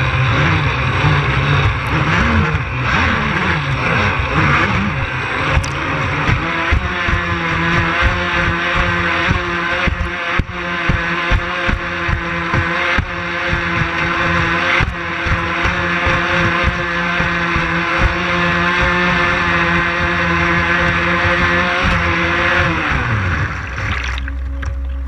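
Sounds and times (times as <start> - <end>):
water rushing: 22.3 - 25.0.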